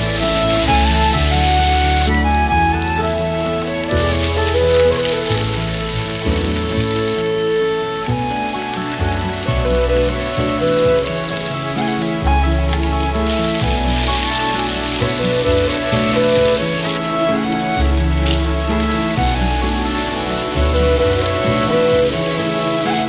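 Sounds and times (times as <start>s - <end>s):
background music with bass line: 0.0s - 23.0s
food sizzling in oil in a frying pan: 12.8s - 17.1s.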